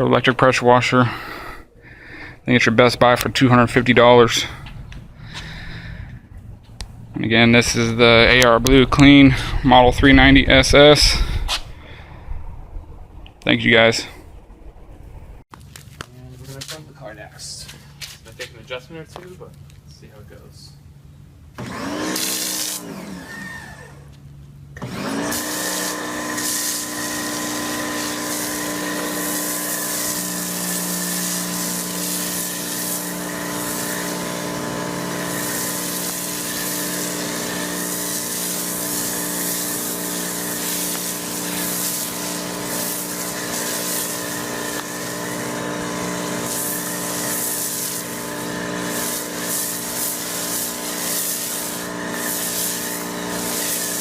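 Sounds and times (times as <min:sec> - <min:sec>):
electric pressure washer humming: 0:21.6 - 0:54.0
spray hissing: 0:25.4 - 0:54.0.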